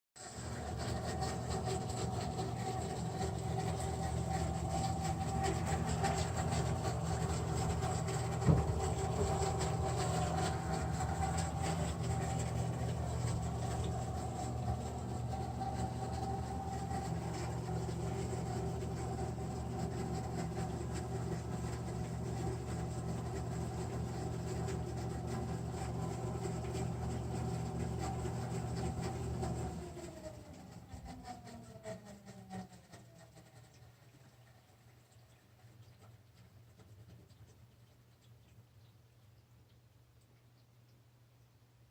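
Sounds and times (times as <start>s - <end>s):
furnace blower motor humming: 0.2s - 33.3s
faint irregular clicks: 33.6s - 41.5s.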